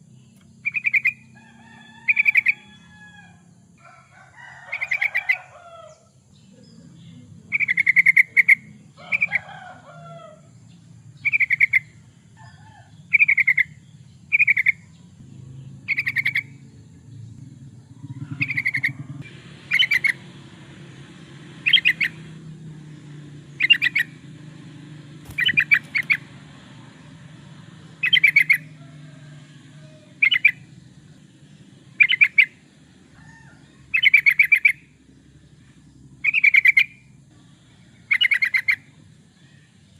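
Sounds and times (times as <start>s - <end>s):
steady low hum: 5.4s - 39.9s
lower sliding bird call: 18.1s - 30.8s
bulbul bubbling song: 18.4s - 24.2s, 25.3s - 26.9s, 27.7s - 28.8s.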